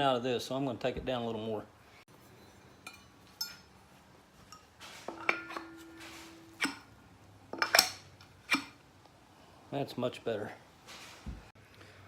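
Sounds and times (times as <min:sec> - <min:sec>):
metal clinks and knocks: 0:02.3 - 0:03.8, 0:04.4 - 0:06.9
metal scraping: 0:04.5 - 0:08.8
short metallic ringing tone: 0:05.3 - 0:06.7.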